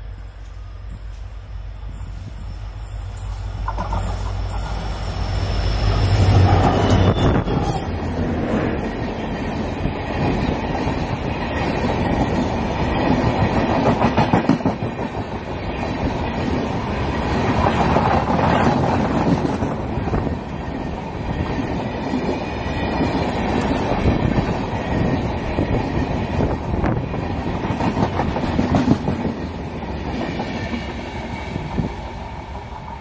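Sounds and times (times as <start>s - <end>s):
locomotive engine drone: 0.0s - 11.7s
train coaches rattling past: 0.0s - 33.0s
wheels clacking over rail joints: 3.6s - 4.9s.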